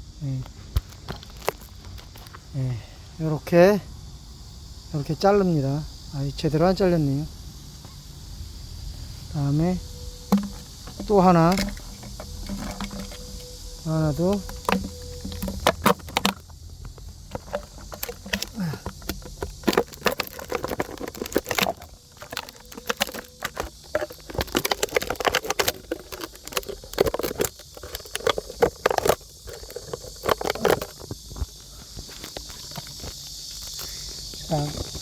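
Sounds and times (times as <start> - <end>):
plastic bottle crinkling: 10.2 - 33.9.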